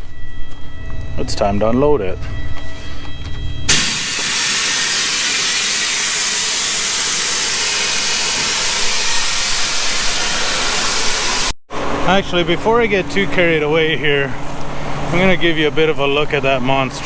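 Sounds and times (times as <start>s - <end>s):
loud steady hiss: 3.7s - 11.6s.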